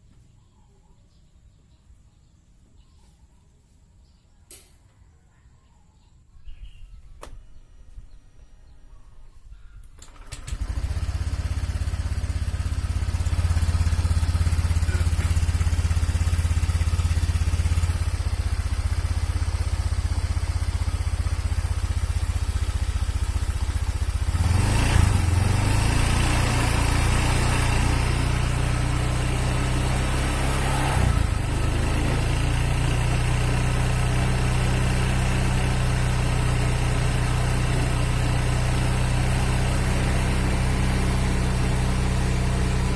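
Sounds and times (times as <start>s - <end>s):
scooter engine idling: 10.1s - 42.9s.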